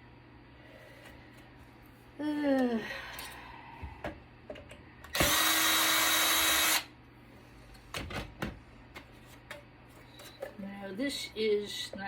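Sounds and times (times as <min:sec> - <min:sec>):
power drill running: 0:05.1 - 0:06.9.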